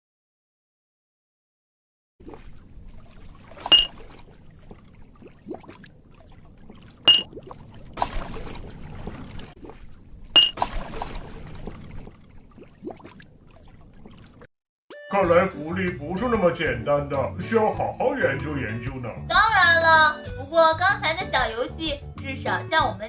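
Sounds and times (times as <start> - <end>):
cartoon water plops: 2.2 - 14.5
water sloshing and trickling: 2.2 - 14.5.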